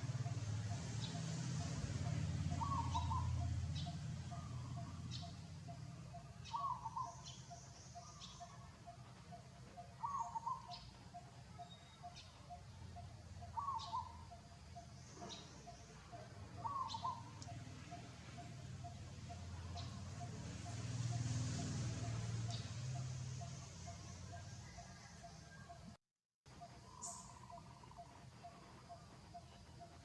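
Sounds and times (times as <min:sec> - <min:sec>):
bird warbling call: 0:02.5 - 0:05.3, 0:13.5 - 0:14.3, 0:16.6 - 0:17.6.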